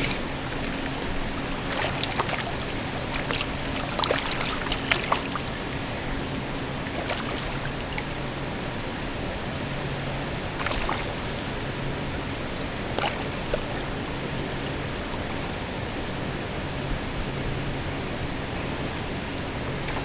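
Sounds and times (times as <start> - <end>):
flowing water rushing: 0.0 - 15.8.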